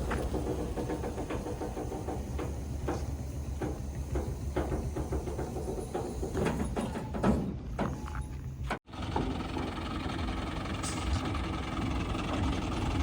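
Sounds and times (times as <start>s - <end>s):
diesel engine running: 0.0s - 7.0s, 7.6s - 13.0s.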